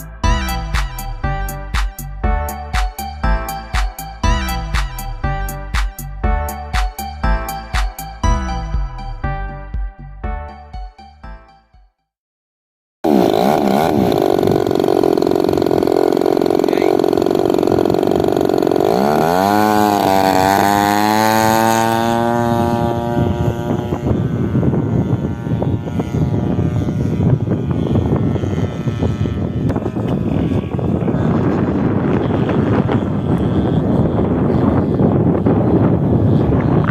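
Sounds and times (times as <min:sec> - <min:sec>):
model airplane engine running: 0:13.1 - 0:36.9.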